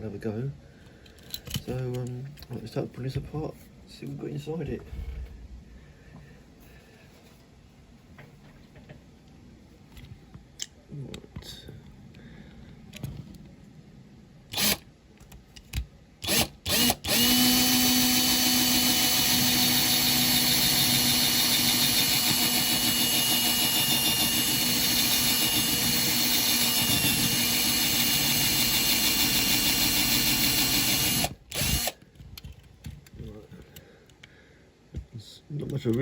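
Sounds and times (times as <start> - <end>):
electric drill whining: 14.5 - 14.8, 16.2 - 32.0.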